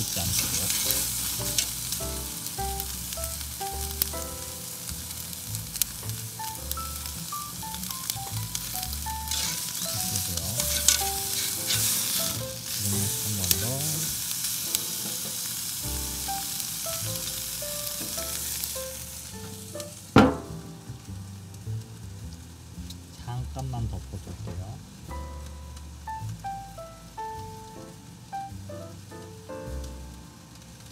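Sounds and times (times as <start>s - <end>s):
steak sizzling on grill: 0.0s - 23.8s, 24.8s - 30.9s
metal grill lid clanking shut: 20.1s - 20.7s.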